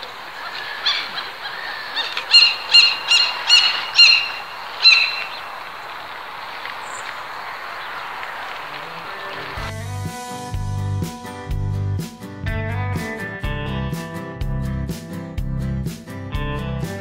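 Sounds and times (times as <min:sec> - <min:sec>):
bird calling loudly: 0:00.0 - 0:09.7.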